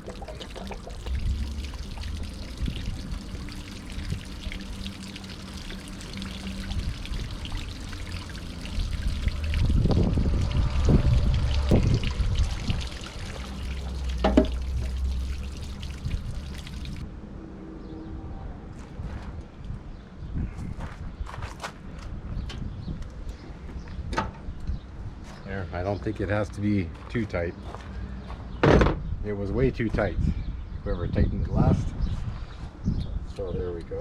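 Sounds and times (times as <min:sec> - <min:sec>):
water pouring and trickling: 0:00.0 - 0:17.1
knocks on tank: 0:28.6 - 0:29.0.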